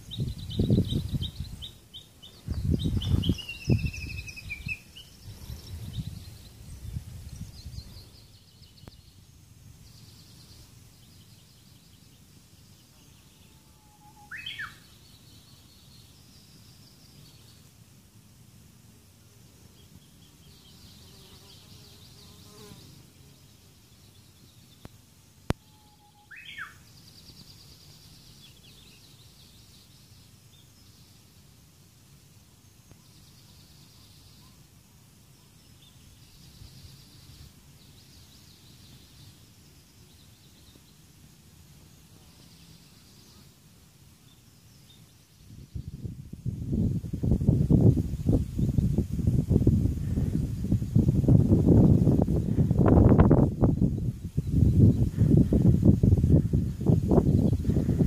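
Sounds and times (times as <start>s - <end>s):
wind rumbling on microphone: 0.0s - 9.0s, 45.4s - 58.0s
birds singing rapid trills: 0.0s - 17.6s, 19.7s - 24.9s, 25.5s - 31.4s, 32.6s - 41.1s, 41.8s - 58.0s
bird sharp call: 13.8s - 14.8s.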